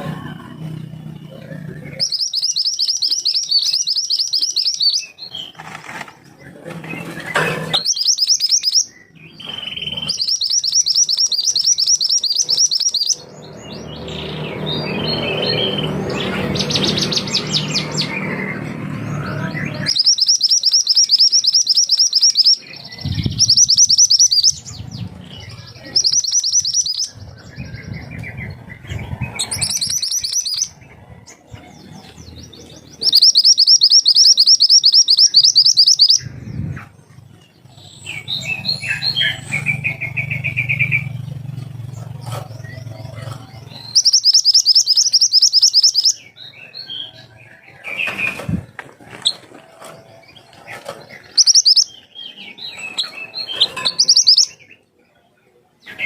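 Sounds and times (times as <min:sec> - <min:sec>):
bird chirps: 0:00.0 - 0:56.0
songbird rattling trills: 0:00.8 - 0:05.7, 0:07.2 - 0:13.6, 0:19.8 - 0:30.9, 0:32.9 - 0:36.4, 0:38.2 - 0:46.3, 0:49.2 - 0:52.1, 0:52.8 - 0:54.6.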